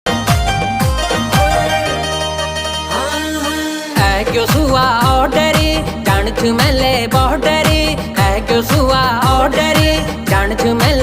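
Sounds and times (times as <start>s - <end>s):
drum hits dropping in pitch: 0.1s - 2.1s
held chord: 0.1s - 4.0s.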